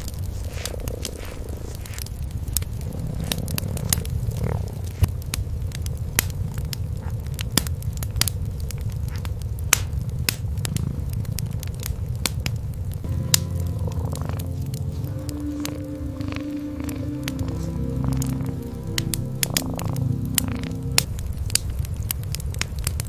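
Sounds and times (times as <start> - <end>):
cat purring: 0.0 - 5.2, 10.6 - 11.4, 13.4 - 21.1
wood fire crackling: 0.0 - 23.0.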